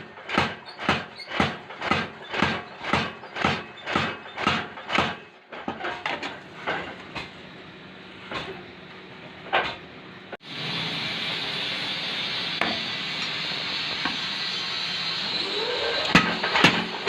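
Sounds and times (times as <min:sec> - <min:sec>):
hammer forging strikes on metal: 0:00.3 - 0:05.3.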